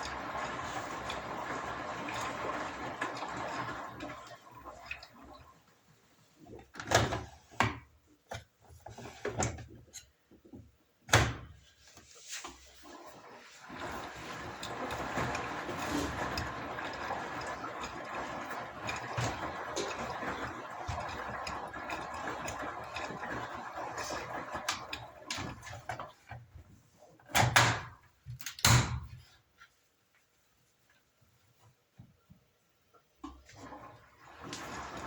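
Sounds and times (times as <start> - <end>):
washing machine water rushing: 0.0 - 7.5, 12.8 - 26.7, 33.2 - 35.0.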